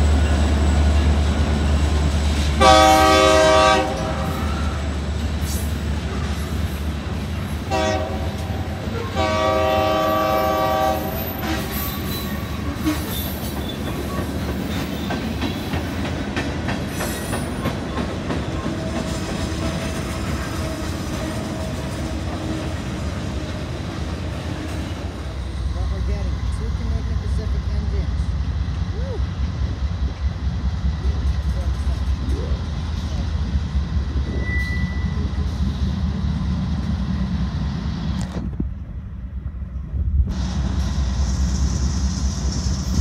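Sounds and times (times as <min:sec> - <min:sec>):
passing train rumble: 0:00.0 - 0:43.0
train horn blasts: 0:02.6 - 0:04.9, 0:07.6 - 0:13.2.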